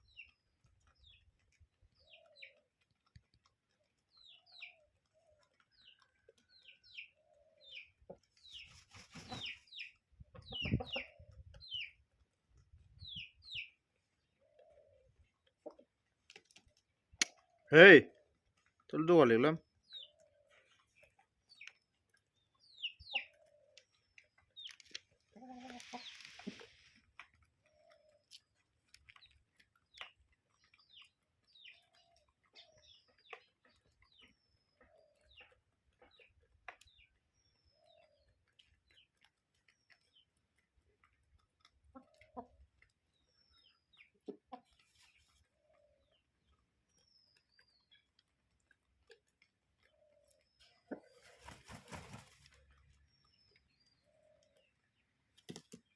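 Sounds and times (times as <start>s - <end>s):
chickens clucking: 0.1s - 17.6s, 20.0s - 37.1s, 41.0s - 46.8s, 47.5s - 55.9s
small clicks and scratches: 0.4s - 6.8s, 23.3s - 43.4s, 53.6s - 55.9s.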